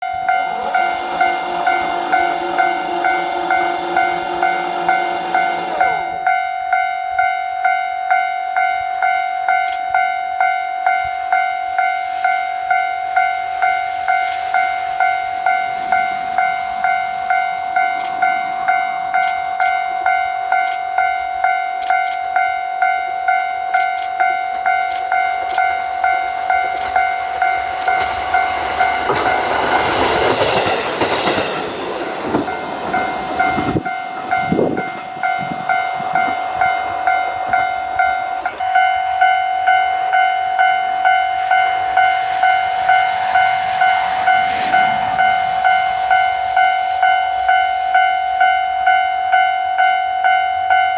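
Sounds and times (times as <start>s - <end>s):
train rumble: 0.0s - 6.8s, 11.0s - 50.9s
level crossing bell ringing: 0.0s - 13.4s, 32.4s - 42.7s.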